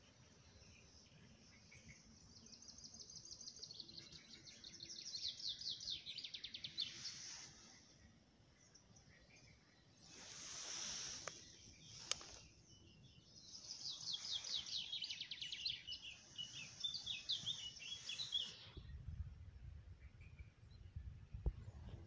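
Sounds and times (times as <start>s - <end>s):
songbird singing: 0.0s - 22.0s
soft hiss: 4.7s - 19.4s.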